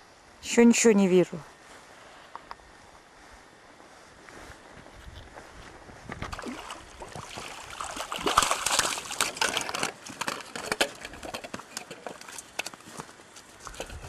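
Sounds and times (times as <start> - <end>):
fish thrashing in water: 6.3 - 12.4.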